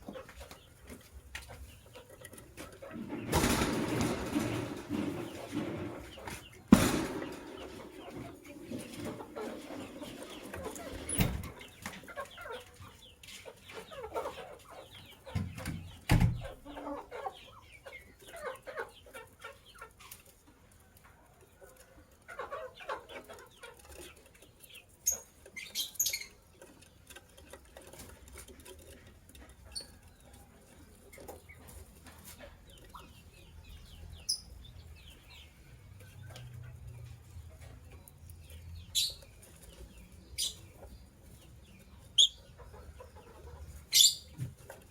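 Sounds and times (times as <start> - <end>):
lovebirds chirping: 22.3 - 27.6, 28.8 - 44.9.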